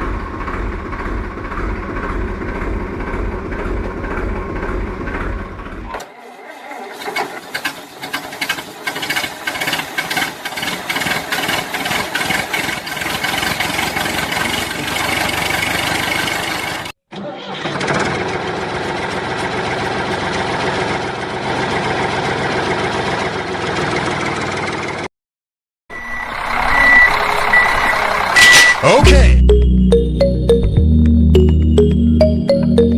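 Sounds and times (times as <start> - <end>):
engine chugging: 0.0 - 16.9, 26.1 - 30.8.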